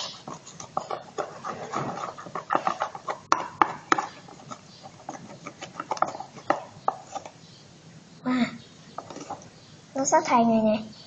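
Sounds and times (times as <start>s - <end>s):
chopsticks stirring slime: 0.0s - 7.4s.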